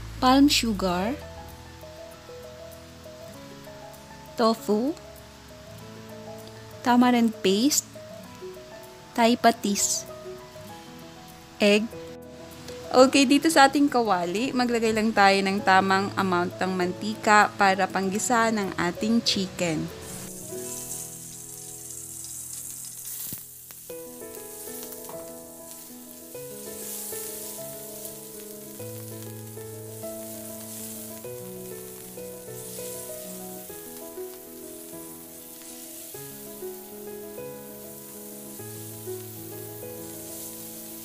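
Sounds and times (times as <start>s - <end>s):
chicken sizzling in hot oil: 0.0s - 41.0s
soft background music: 0.0s - 41.0s
wooden spatula turning food: 19.9s - 41.0s.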